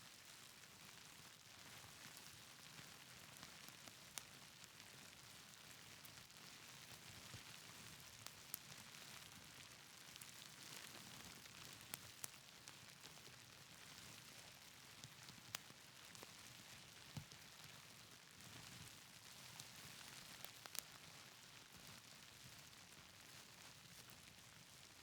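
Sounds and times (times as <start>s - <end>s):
wood fire crackling: 10.0s - 12.4s, 19.5s - 21.1s.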